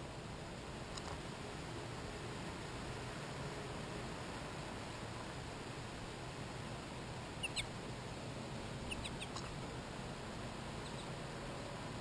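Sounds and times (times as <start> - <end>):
steady hiss: 0.0 - 12.0
short downward-sliding bird calls: 7.4 - 7.7, 8.8 - 9.6.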